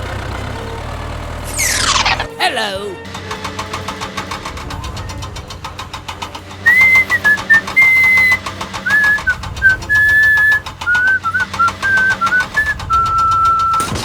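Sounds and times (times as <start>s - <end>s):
small engine chugging: 0.0s - 2.3s, 3.0s - 14.0s
person whistling a tune: 6.6s - 14.0s.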